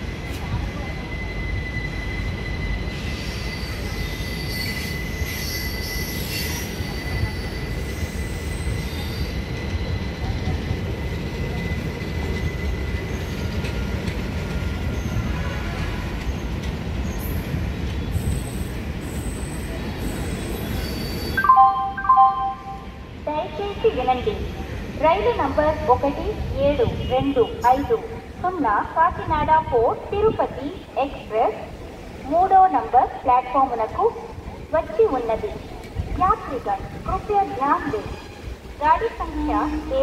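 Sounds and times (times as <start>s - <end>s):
train wheels rumbling on rail: 0.0s - 21.4s, 23.1s - 40.0s
wheel squeal: 0.2s - 10.4s, 18.0s - 21.4s
public address chime: 21.4s - 24.4s.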